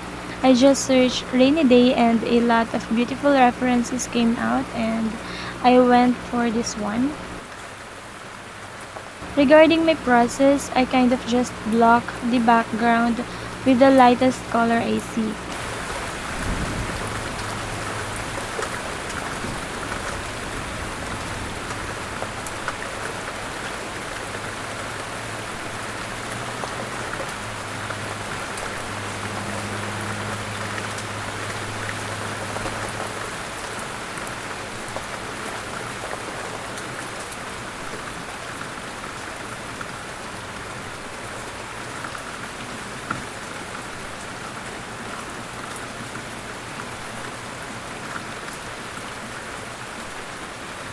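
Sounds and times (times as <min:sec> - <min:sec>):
steady rain falling: 0:00.0 - 0:50.9
faint low hum: 0:09.2 - 0:16.8.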